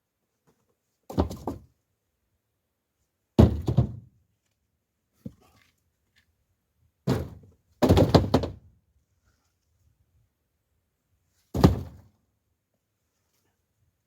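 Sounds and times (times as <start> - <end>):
logs landing with thunks: 1.1 - 1.7, 3.4 - 4.1, 7.0 - 8.7, 11.5 - 12.2.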